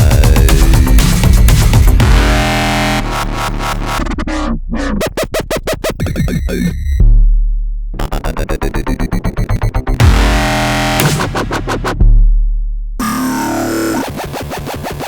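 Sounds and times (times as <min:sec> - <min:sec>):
electronic dubstep beat: 0:00.0 - 0:07.2, 0:08.0 - 0:15.0
deep sustained bass note: 0:10.0 - 0:11.2.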